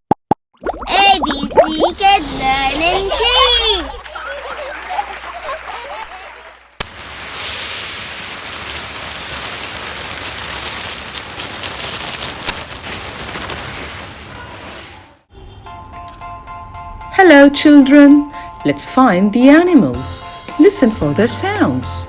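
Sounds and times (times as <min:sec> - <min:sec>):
pattering hiss of small impacts: 0:06.8 - 0:15.0.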